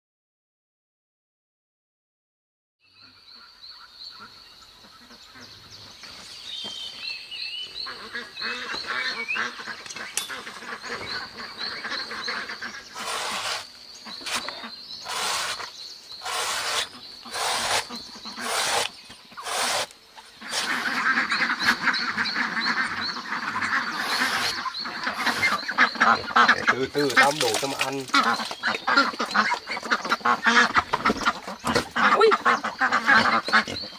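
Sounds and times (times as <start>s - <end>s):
ducks quacking: 7.8s - 33.9s.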